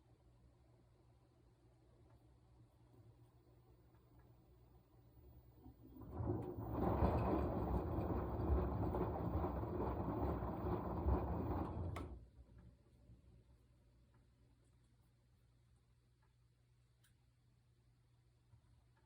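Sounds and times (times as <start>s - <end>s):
washing machine drum turning: 5.6s - 12.3s.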